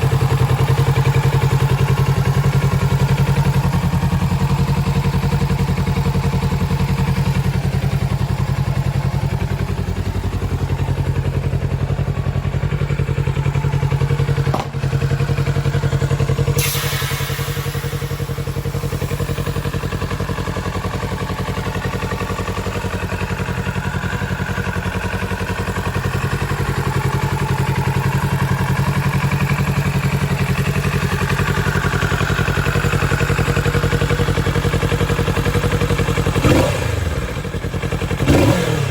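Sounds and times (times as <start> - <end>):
motorcycle engine idling: 0.0 - 38.9
hiss: 16.6 - 19.6.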